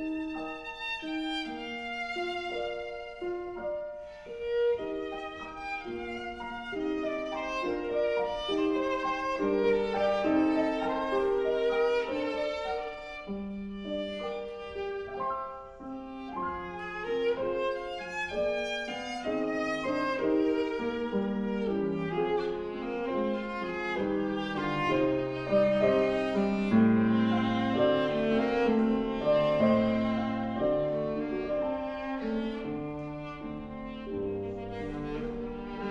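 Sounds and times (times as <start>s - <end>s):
bowed viola melody: 0.0s - 35.9s
piano accompaniment: 0.0s - 35.9s.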